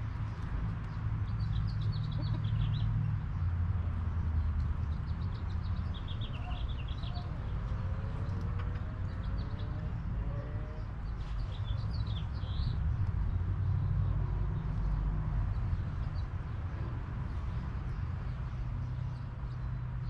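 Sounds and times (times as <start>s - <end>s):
small songbird chirping: 0.2s - 3.4s, 4.4s - 8.5s, 9.1s - 16.4s.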